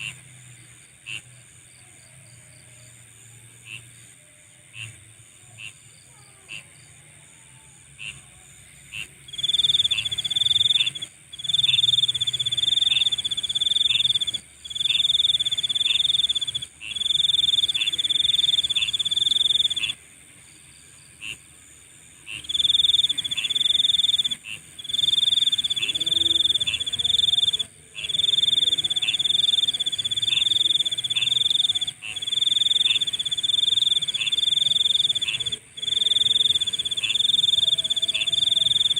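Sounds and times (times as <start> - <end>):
high-pitched insect drone: 8.1 - 38.9
insect trilling: 8.9 - 38.9
sharp insect chirps: 9.0 - 38.9.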